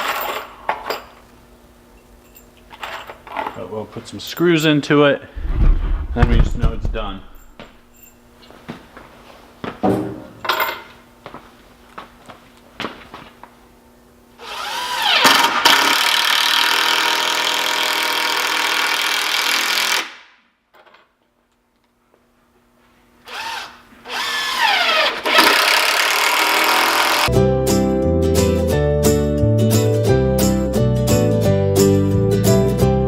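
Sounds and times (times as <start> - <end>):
power drill driving screws: 14.4 - 20.2, 23.3 - 27.3.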